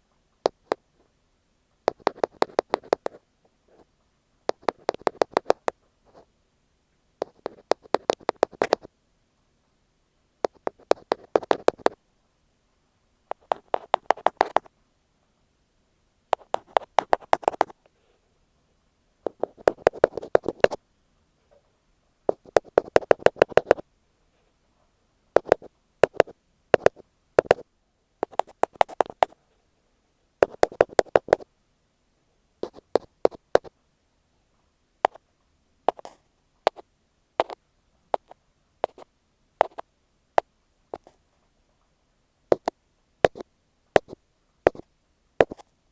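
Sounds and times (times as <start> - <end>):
tapping on earphone microphone: 0.4 - 0.8, 1.9 - 3.9, 4.5 - 6.3, 7.2 - 8.9, 10.4 - 12.0, 13.3 - 14.7, 16.3 - 17.9, 19.2 - 20.8, 22.3 - 23.8, 25.4 - 27.6, 28.2 - 29.4, 30.4 - 31.5, 32.6 - 33.7, 35.0 - 35.2, 35.9 - 36.8, 37.4 - 41.2, 42.5 - 45.7.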